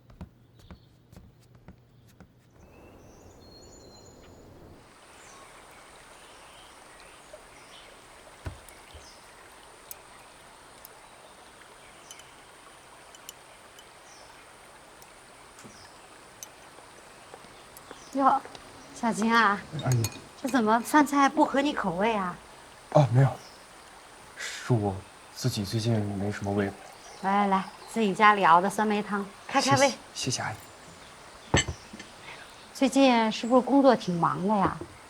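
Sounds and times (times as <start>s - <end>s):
bird chirps: 2.6s - 7.9s
rushing water: 2.8s - 35.0s.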